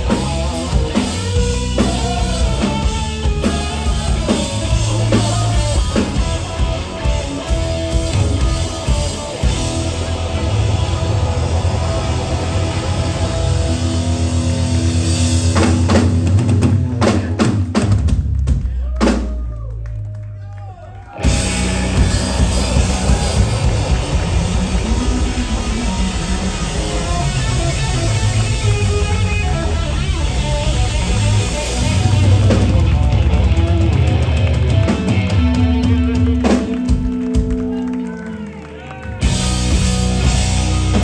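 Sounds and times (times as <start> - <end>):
live rock band playing: 0.0 - 19.3, 21.2 - 41.0
hard drum and cymbal hits: 21.2 - 33.4.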